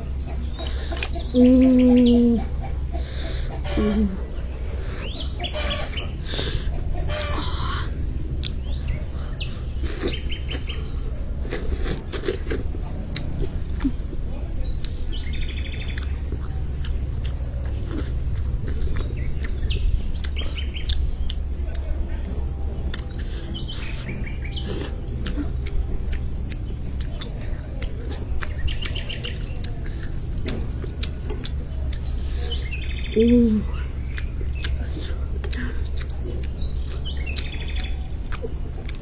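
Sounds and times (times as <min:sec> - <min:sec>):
small birds chirping: 0:00.0 - 0:39.0
steady low rumble: 0:00.0 - 0:39.0
brief low voiced sound: 0:33.1 - 0:33.8.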